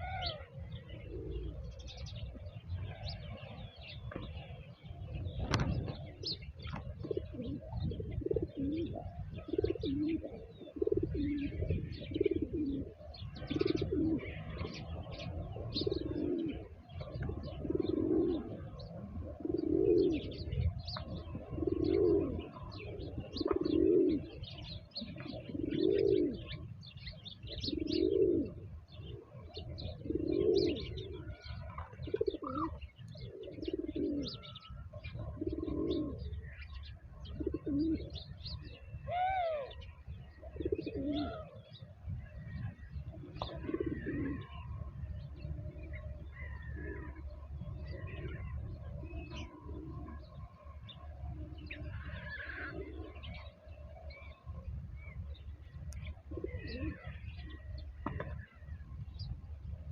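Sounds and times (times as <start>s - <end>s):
rising-and-falling bird call: 0.0s - 0.6s, 39.0s - 39.9s
dove cooing: 0.0s - 59.8s
small birds chirping: 0.0s - 59.9s.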